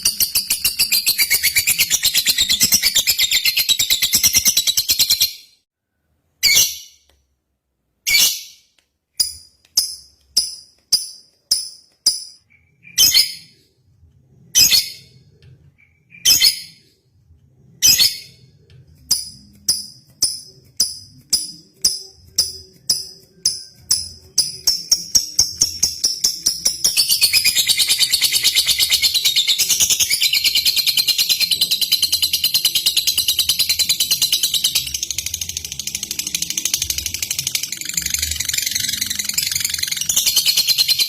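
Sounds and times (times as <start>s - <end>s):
lovebird shrill chirps: 6.4s - 7.0s, 8.1s - 13.6s, 15.8s - 16.8s.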